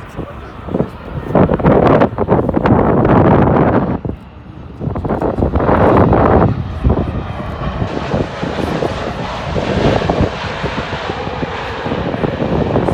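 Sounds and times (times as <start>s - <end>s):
jet engines of landing aircraft: 0.0s - 12.9s.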